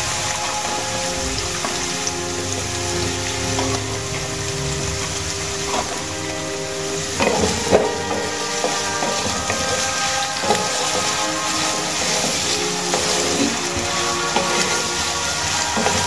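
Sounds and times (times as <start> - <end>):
potatoes sizzling in oil: 0.0 - 16.0
spatula scraping a pan: 5.6 - 16.0.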